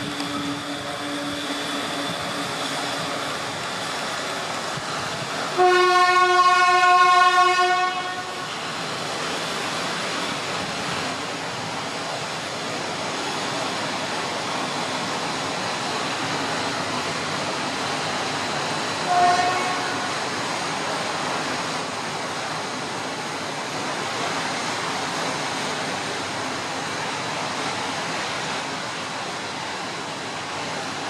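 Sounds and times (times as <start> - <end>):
freight train wagons rolling: 0.0 - 31.0
train horn blast: 0.2 - 3.3, 5.5 - 8.5, 19.1 - 20.2.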